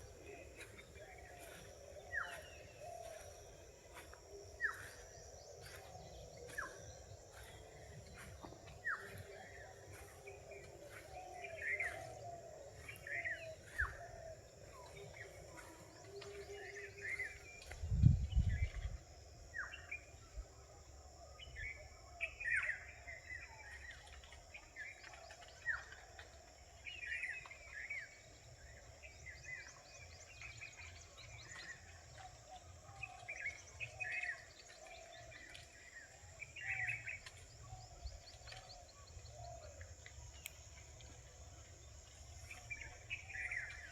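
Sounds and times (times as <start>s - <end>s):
birds chirping: 0.0s - 17.8s.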